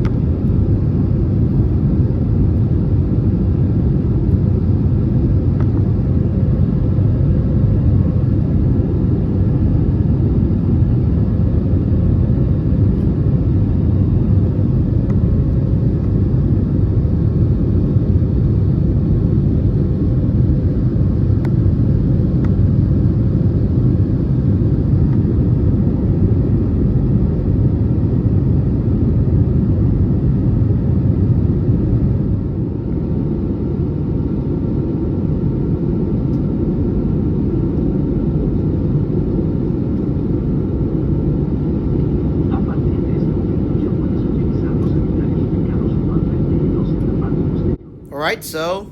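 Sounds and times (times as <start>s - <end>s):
airplane cabin engine rumble: 0.0s - 27.1s.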